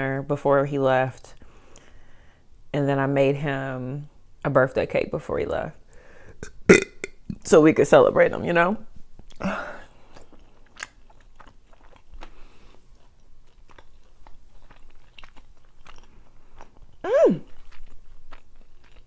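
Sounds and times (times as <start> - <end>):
person humming: 17.0 - 17.5.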